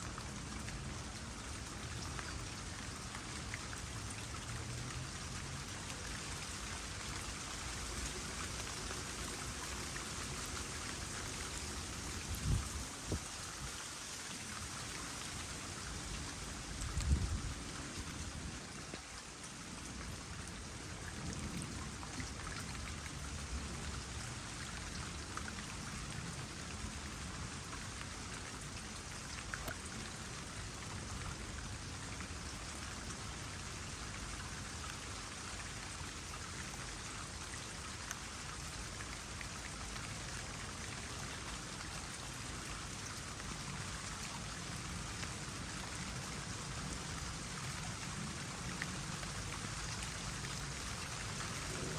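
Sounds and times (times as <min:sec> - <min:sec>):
rain pattering on water: 0:00.0 - 0:51.9
water trickling into pond: 0:00.0 - 0:51.9
water drops: 0:29.6 - 0:29.8.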